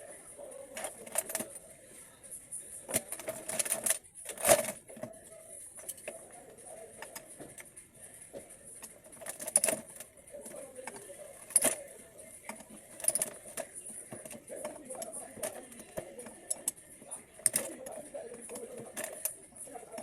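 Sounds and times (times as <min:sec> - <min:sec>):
metal parts and tools clinking: 0:00.6 - 0:01.8, 0:02.9 - 0:07.8, 0:08.5 - 0:20.0.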